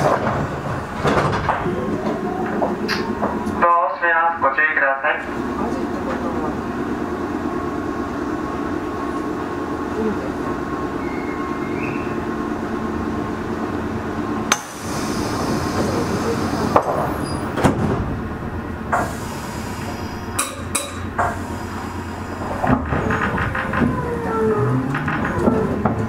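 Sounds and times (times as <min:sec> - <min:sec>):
train rumble and hum: 0:00.0 - 0:26.0
sharp clanks: 0:20.4 - 0:21.4.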